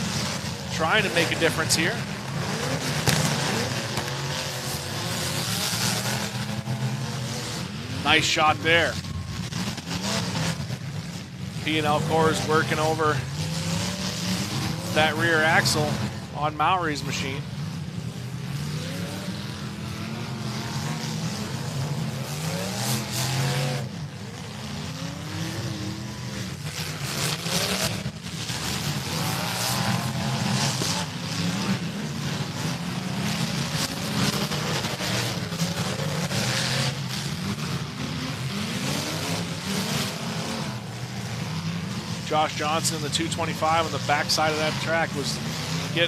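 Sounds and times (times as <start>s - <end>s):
car engines revving: 0.0s - 46.0s
cars crunching into each other: 0.2s - 17.0s.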